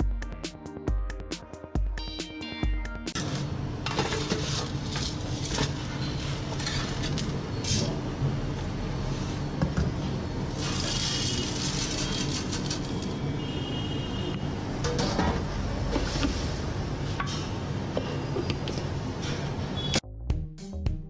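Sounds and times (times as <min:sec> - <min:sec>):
background music: 0:00.0 - 0:03.2, 0:20.0 - 0:21.0
utensils clinking and scraping: 0:03.2 - 0:08.0, 0:10.6 - 0:13.2.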